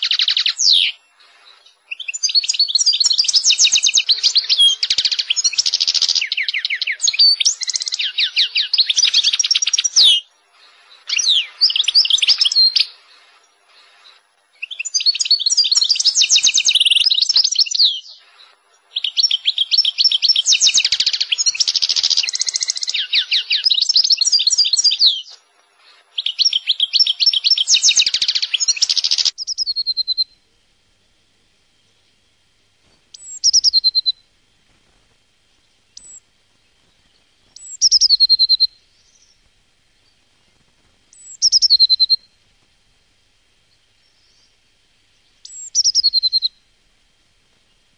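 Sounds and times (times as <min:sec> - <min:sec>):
bird call: 0:00.0 - 0:30.4, 0:33.1 - 0:34.3, 0:36.0 - 0:36.3, 0:37.6 - 0:39.4, 0:41.1 - 0:42.4, 0:45.4 - 0:46.6
songbird warbling trills: 0:00.0 - 0:30.4, 0:33.1 - 0:34.3, 0:35.9 - 0:40.3, 0:41.1 - 0:42.4, 0:45.2 - 0:46.6.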